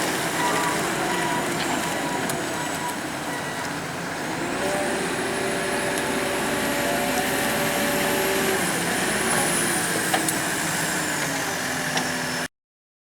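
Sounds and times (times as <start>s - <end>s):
motor vehicle running: 4.2s - 12.3s.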